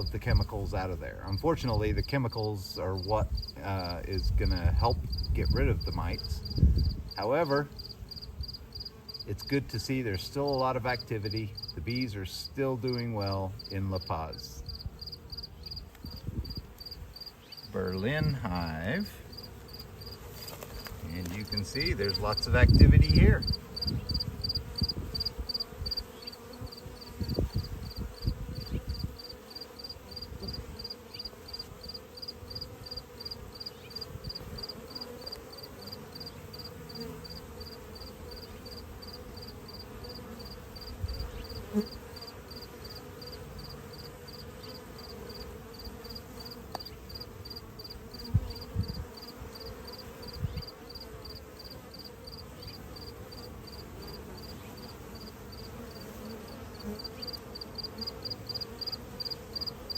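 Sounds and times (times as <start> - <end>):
honeybees buzzing: 0.0 - 59.9
cricket chirping: 7.8 - 9.2, 11.6 - 11.8, 14.3 - 17.7, 19.3 - 20.2, 22.3 - 56.1, 56.8 - 59.9.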